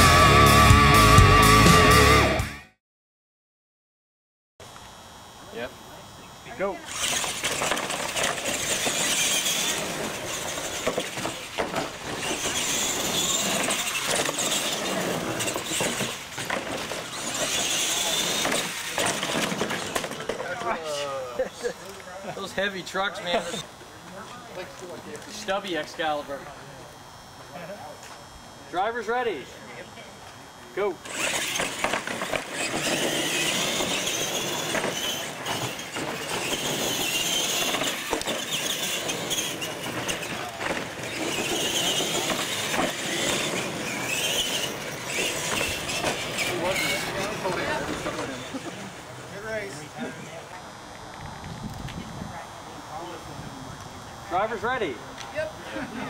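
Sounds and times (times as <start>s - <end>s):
toy truck motors whining: 6.3s - 26.3s, 30.5s - 50.0s.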